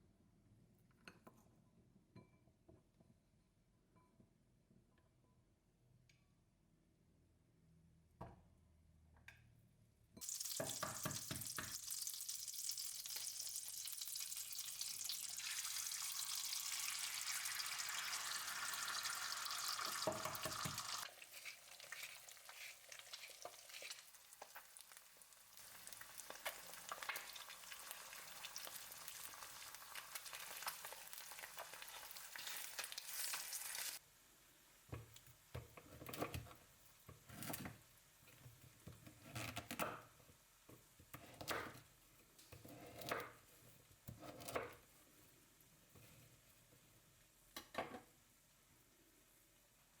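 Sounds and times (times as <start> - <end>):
food sizzling in a frying pan: 10.2 - 35.2.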